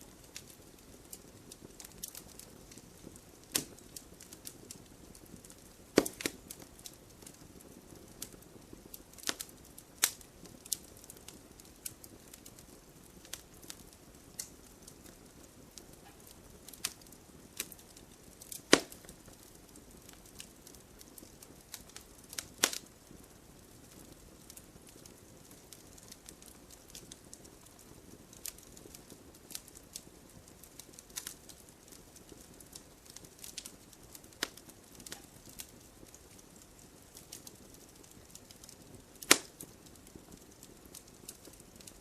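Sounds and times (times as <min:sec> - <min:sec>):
faint low hiss: 0:00.0 - 0:42.0
wood fire crackling and popping: 0:00.0 - 0:42.0.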